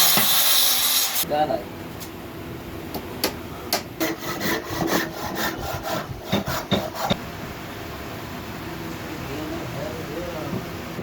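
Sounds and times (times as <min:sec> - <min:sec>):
tool scraping wood: 0:04.0 - 0:07.2.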